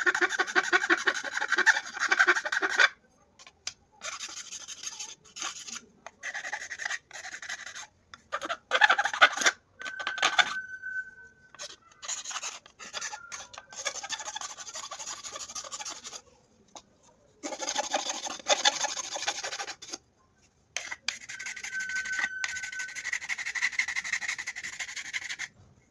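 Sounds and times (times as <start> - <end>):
file rasping on workpiece: 0.0 - 3.0, 4.0 - 9.6, 11.6 - 16.2, 17.4 - 20.0, 20.8 - 25.5.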